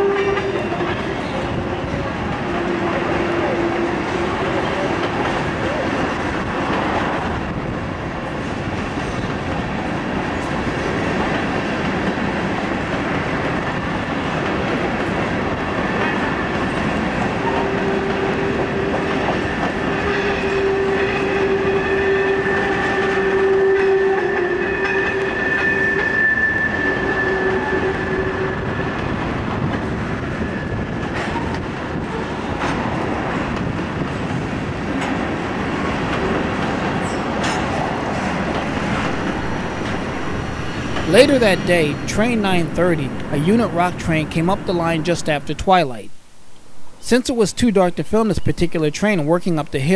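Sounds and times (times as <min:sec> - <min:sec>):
train wheels rumbling on rails: 0:00.0 - 0:45.6
steady whine: 0:38.3 - 0:47.4.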